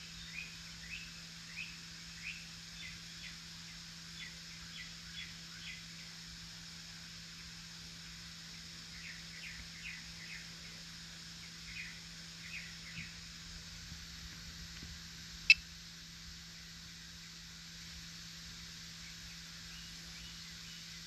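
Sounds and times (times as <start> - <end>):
faint low hum: 0.0 - 21.0
small birds chirping: 8.8 - 13.3, 19.0 - 21.0.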